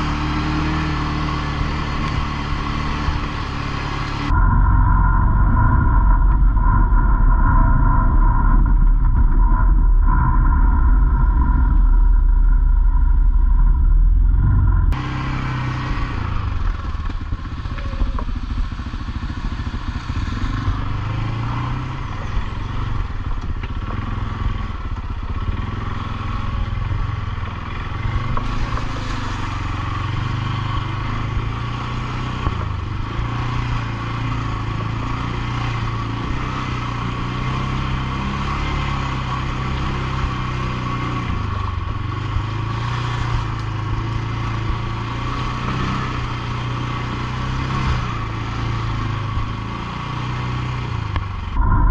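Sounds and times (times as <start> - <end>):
atv engine running: 0.0 - 51.9.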